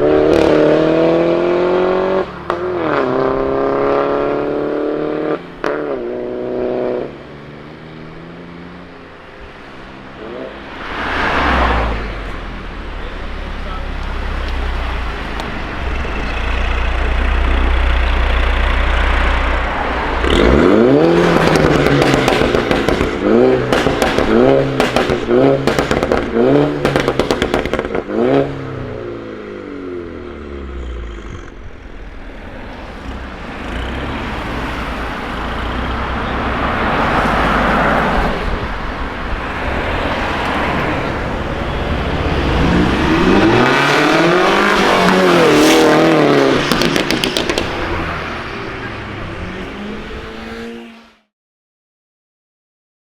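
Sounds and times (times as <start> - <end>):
car engine revving: 0.0 - 51.3
exhaust crackling and popping: 20.2 - 28.2, 46.2 - 48.2.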